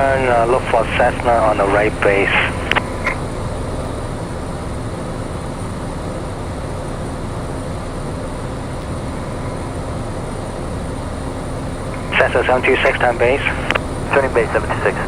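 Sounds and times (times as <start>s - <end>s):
light aircraft engine droning: 0.0s - 15.0s.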